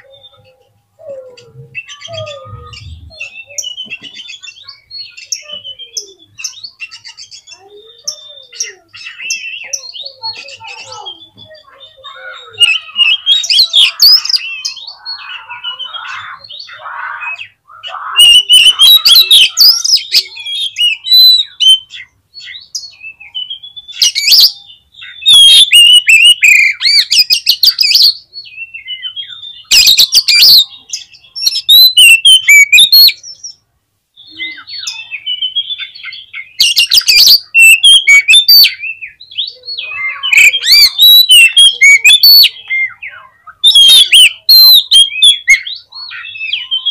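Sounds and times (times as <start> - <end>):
bird singing whistles and chirps: 0.0 - 33.6, 34.2 - 46.9.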